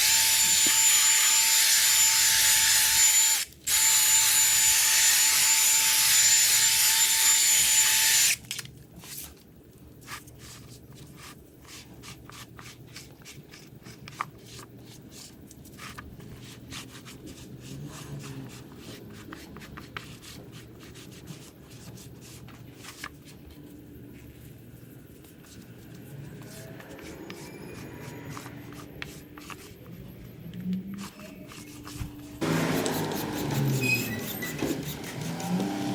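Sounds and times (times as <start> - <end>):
whining power tool: 0.0 - 8.4, 32.4 - 35.9
hand rubbing and scrubbing: 14.9 - 35.9.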